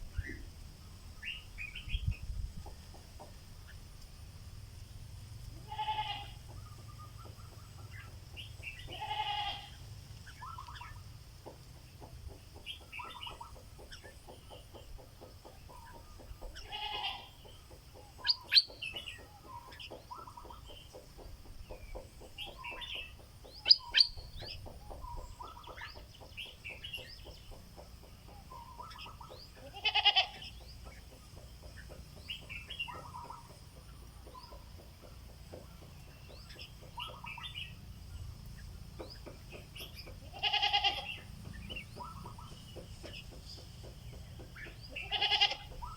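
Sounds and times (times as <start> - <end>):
rough bird call: 39.8 - 43.2, 44.6 - 45.9.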